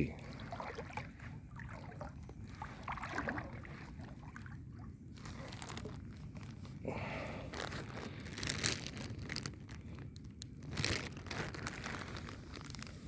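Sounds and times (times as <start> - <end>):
person wading through water: 0.0 - 13.0.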